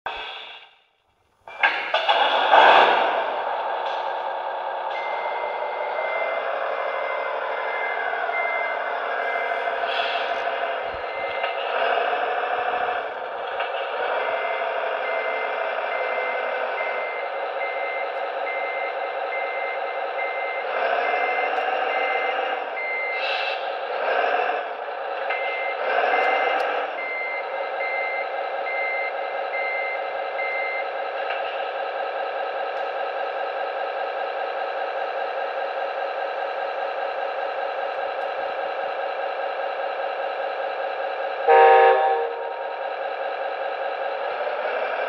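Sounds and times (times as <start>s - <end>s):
simulated diesel engine running: 1.5s - 45.0s
reverse warning beeper: 3.8s - 11.7s, 14.3s - 23.9s, 25.2s - 31.0s, 41.3s - 43.0s.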